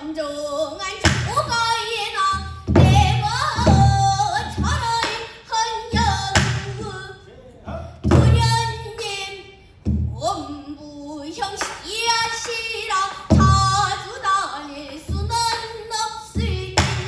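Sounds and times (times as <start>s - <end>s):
girl singing with bending notes: 0.0s - 17.0s
barrel drum strokes: 1.0s - 7.2s, 7.8s - 10.6s.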